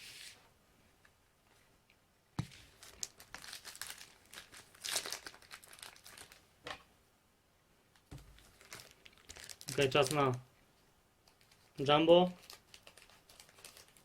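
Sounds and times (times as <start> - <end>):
wrapper crinkling and tearing: 2.7 - 6.4, 8.4 - 10.4, 11.3 - 14.0.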